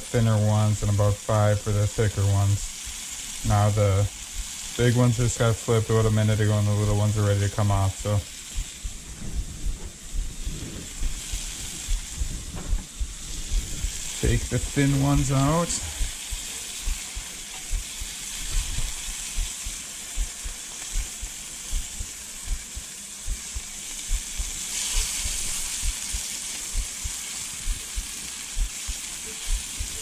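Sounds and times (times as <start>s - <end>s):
fish sizzling in frying pan: 0.0s - 9.2s, 10.0s - 30.0s
spatula low thumps: 8.2s - 28.9s.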